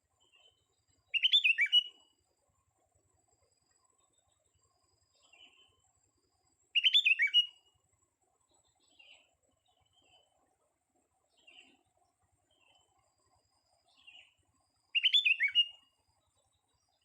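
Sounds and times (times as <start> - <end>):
bird singing whistled notes: 0.2 - 2.1, 6.7 - 7.7, 13.9 - 17.0.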